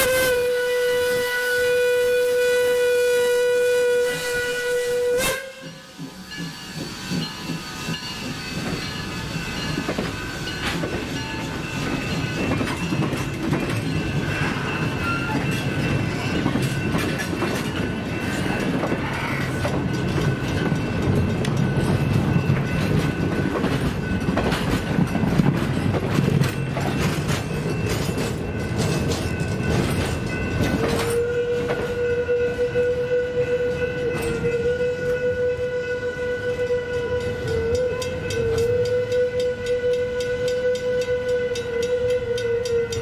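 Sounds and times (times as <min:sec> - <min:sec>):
train whistle: 0:00.0 - 0:08.0, 0:18.4 - 0:19.7, 0:30.7 - 0:43.0
train cars rolling on rails: 0:00.0 - 0:43.0
level-crossing bell ringing: 0:05.7 - 0:25.4, 0:26.3 - 0:31.4.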